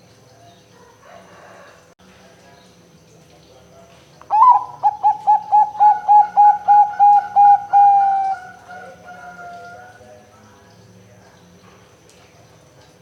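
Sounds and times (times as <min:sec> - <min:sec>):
dove cooing: 0:04.3 - 0:10.0.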